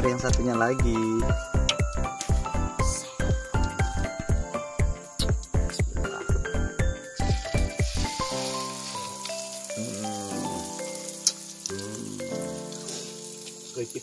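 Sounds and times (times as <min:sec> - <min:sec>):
background music: 0:00.0 - 0:14.0
oil sizzling in a wok: 0:06.9 - 0:14.0.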